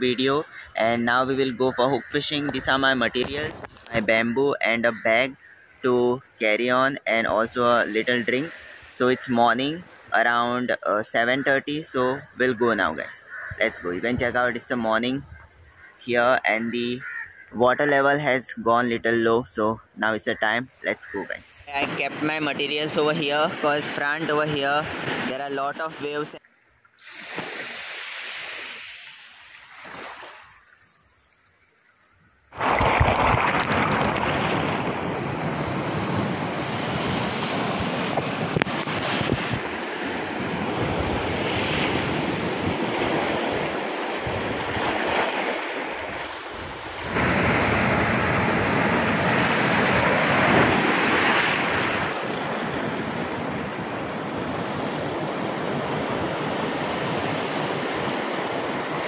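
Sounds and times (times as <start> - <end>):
sea waves breaking: 0.0 - 6.0, 7.2 - 10.8, 20.8 - 26.4, 27.0 - 31.0, 32.5 - 59.0
wind buffeting microphone: 32.5 - 59.0.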